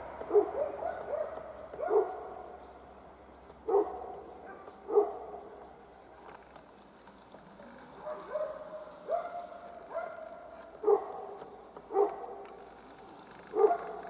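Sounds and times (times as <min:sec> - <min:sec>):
dog barking: 0:00.3 - 0:02.5, 0:03.6 - 0:05.6, 0:08.0 - 0:12.5, 0:13.5 - 0:14.0.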